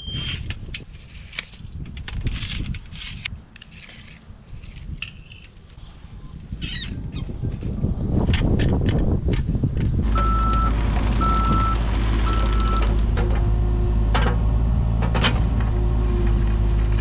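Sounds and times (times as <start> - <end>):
diesel engine running: 10.0 - 17.0
reversing alarm beeping: 10.1 - 12.9.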